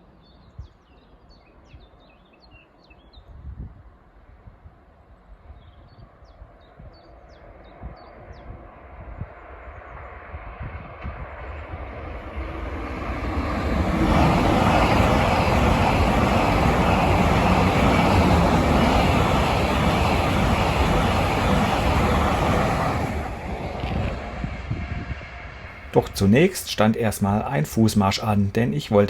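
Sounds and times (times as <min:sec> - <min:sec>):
high-speed train passing: 0:07.4 - 0:29.0.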